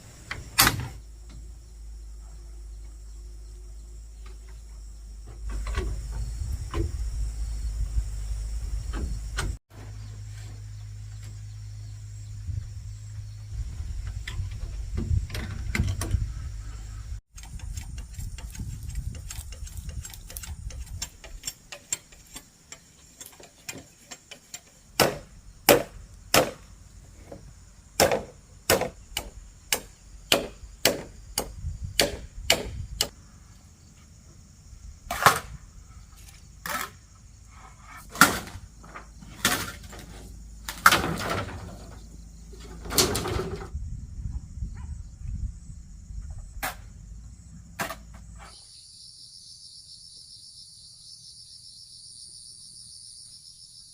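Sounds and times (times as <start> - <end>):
sharp knocks: 25.0 - 26.6, 28.0 - 33.1.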